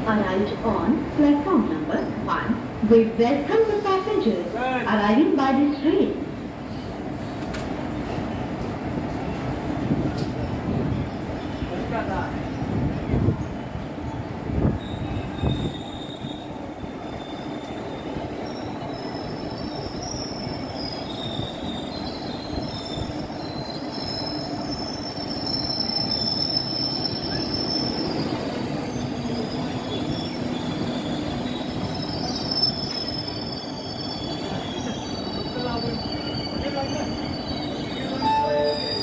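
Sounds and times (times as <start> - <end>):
train wheels rumbling on rail: 0.0 - 39.0
high-pitched wheel squeal: 21.2 - 39.0.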